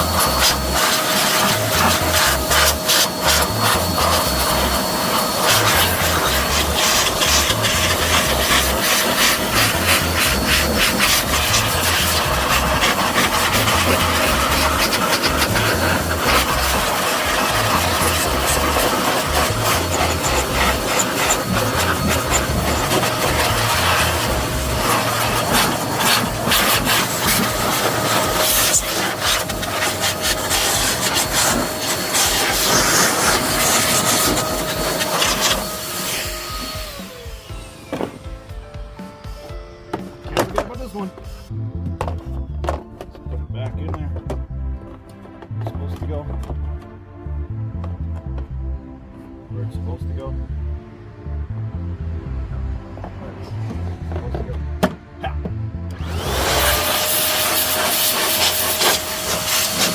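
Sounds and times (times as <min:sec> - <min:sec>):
brush scrubbing: 0:00.0 - 0:37.2, 0:56.5 - 0:59.9
background music with bass line: 0:00.0 - 0:57.1.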